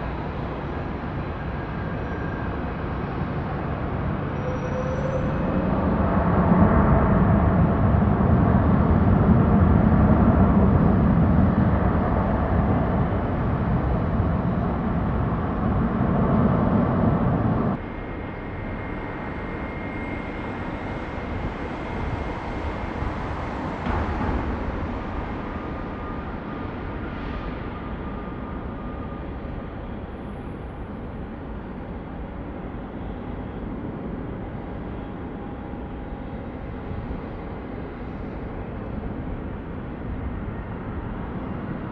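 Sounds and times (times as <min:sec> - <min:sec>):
quieter jet rumble: 0:05.5 - 0:41.9.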